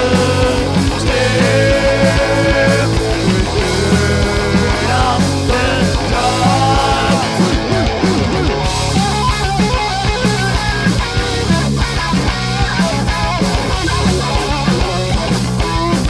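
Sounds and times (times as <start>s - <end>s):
bass guitar: 0.0s - 16.0s
distorted electric guitars: 0.0s - 16.0s
steady drum beat: 0.0s - 16.0s.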